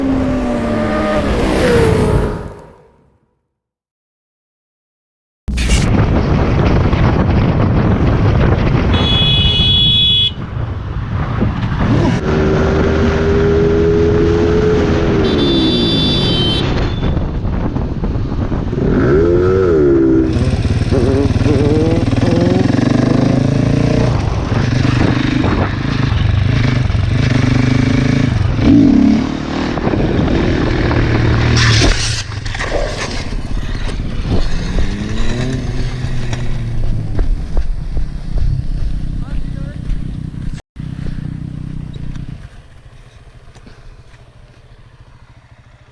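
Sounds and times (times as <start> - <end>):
motorcycle engines revving: 0.0 - 3.2, 11.2 - 45.9.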